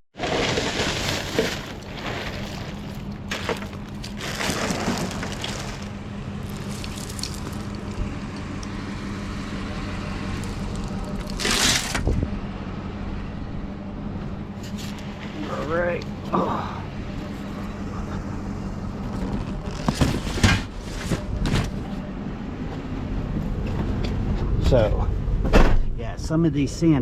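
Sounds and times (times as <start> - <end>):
vehicle engine humming: 0.2 - 25.6
rustling and clattering handling: 19.0 - 22.0.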